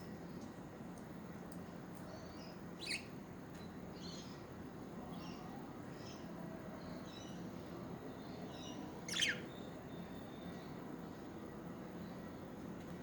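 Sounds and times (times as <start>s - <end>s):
budgerigars chirping: 2.8s - 3.1s, 9.1s - 9.4s.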